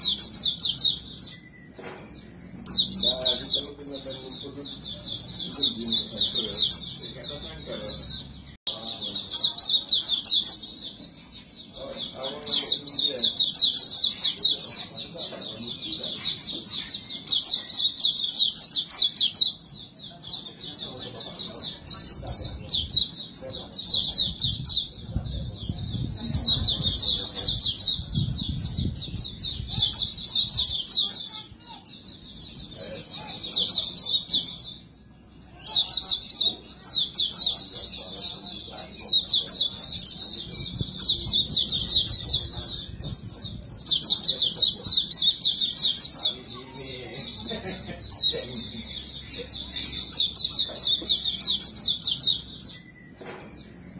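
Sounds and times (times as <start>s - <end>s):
bird twittering song: 0.0s - 53.9s.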